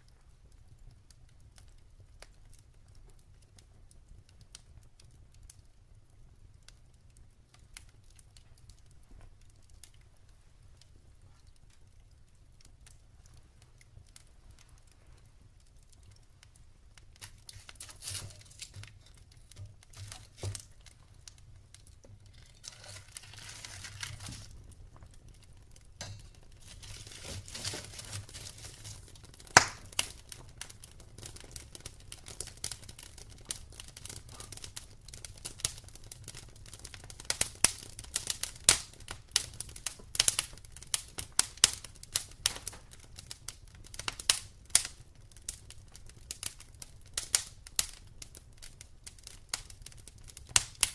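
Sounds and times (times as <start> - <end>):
wood fire crackling: 0.0 - 50.9
loud pop: 29.6 - 29.9.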